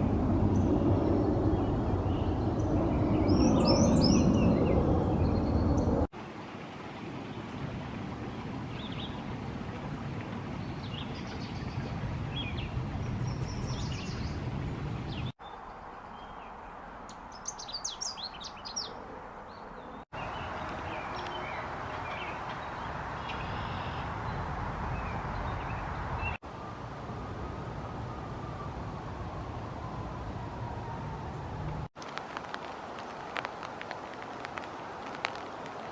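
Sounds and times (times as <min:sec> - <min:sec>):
songbirds singing and chirping: 0:00.5 - 0:06.0, 0:10.6 - 0:26.4.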